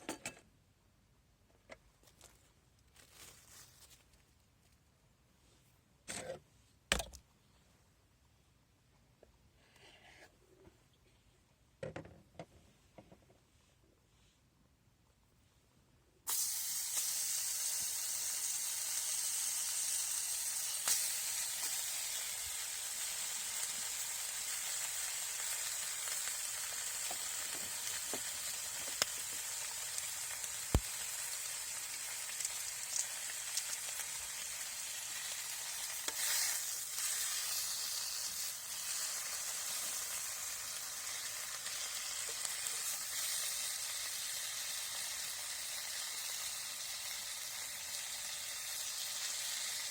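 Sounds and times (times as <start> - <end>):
food sizzling in a pan: 16.3 - 49.9.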